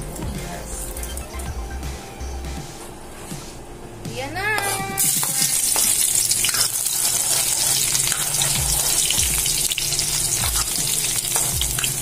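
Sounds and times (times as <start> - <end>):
metal spatula scraping wok: 4.6 - 12.0
garlic and onion sizzling in oil: 5.0 - 12.0.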